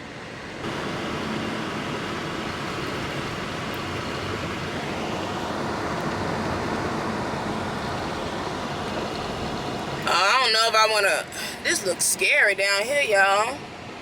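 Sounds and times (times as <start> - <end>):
tyre noise on icy road: 0.0 - 10.6.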